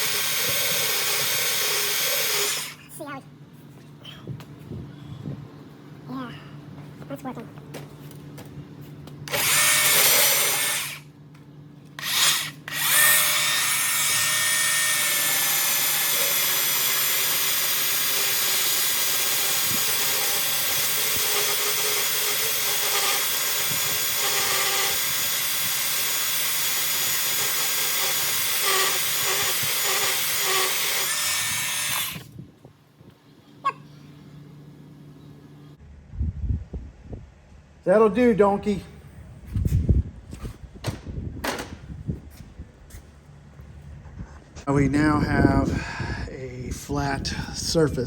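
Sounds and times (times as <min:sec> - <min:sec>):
belt sander grinding metal: 0:00.0 - 0:02.8, 0:09.3 - 0:11.1, 0:12.0 - 0:32.3.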